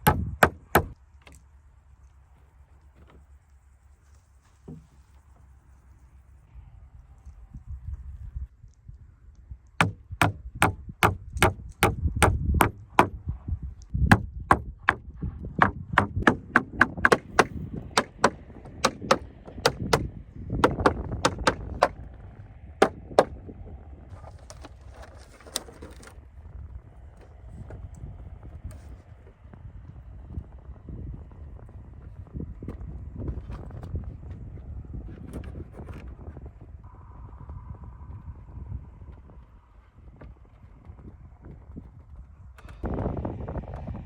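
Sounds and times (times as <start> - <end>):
hammer driving nails into wood: 0.0 - 1.0, 9.8 - 13.2, 14.1 - 15.0, 15.6 - 22.0, 22.8 - 23.3.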